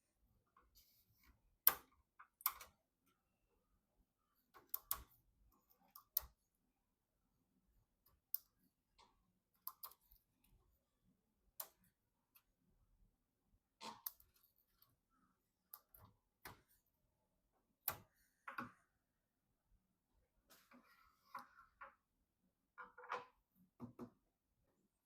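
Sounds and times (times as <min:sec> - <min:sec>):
computer parts clicking and knocking: 0:04.5 - 0:05.2.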